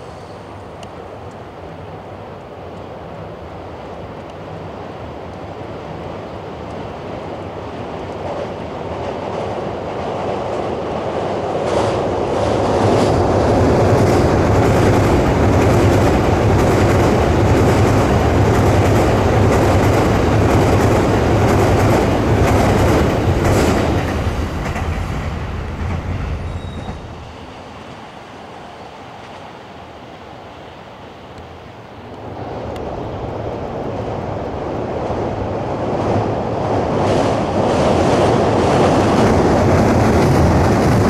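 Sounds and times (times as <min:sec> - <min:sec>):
train rumbling over steel bridge: 0:00.0 - 0:41.0
rail joint clicks: 0:00.1 - 0:01.6, 0:04.0 - 0:04.6, 0:07.9 - 0:28.1.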